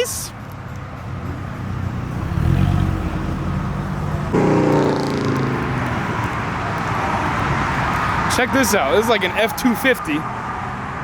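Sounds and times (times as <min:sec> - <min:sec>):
car engine running: 0:01.5 - 0:08.4.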